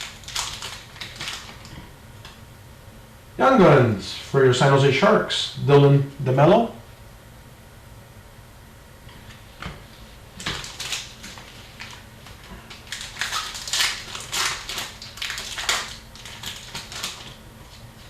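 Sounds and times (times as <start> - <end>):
card packaging rustling: 0.0 - 1.8, 10.4 - 18.0.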